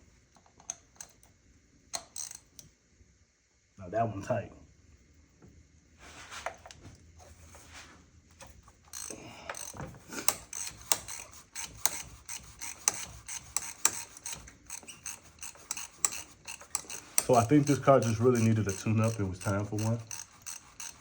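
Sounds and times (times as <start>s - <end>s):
ratchet wrench clicking: 1.9s - 2.6s, 8.9s - 21.0s
metal tools scraping and handling: 9.0s - 21.0s.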